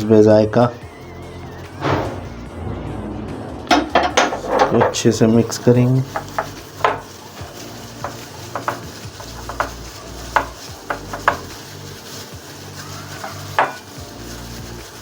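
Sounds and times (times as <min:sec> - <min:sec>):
utensil scraping and clinking bowl: 0:03.7 - 0:15.0.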